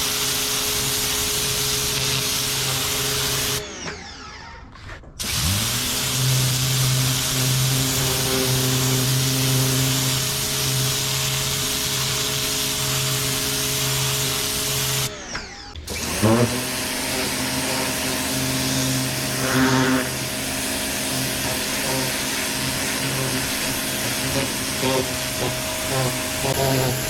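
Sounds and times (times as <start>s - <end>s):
pressure washer motor: 0.0s - 4.6s, 5.2s - 27.0s
hiss of water spray: 5.7s - 15.1s.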